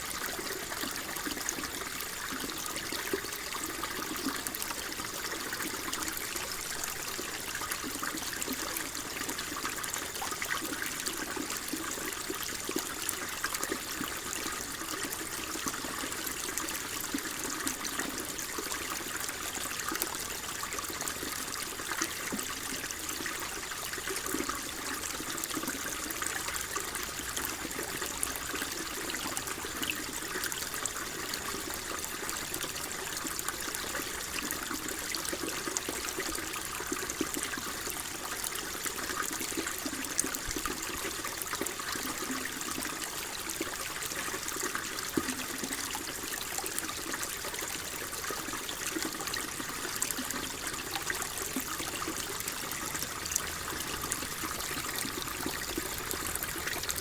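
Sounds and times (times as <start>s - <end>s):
stream babbling: 26.2s - 57.0s
small water splashes: 35.9s - 57.0s.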